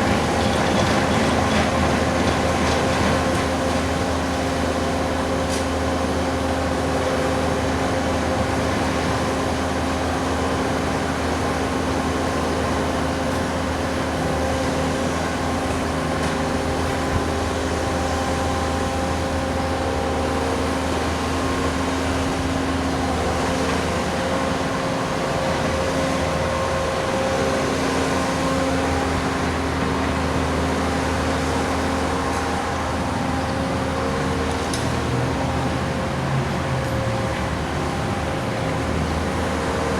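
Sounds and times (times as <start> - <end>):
constant hum of held tones: 0.0 - 39.9
diesel engines running under load: 0.0 - 39.9.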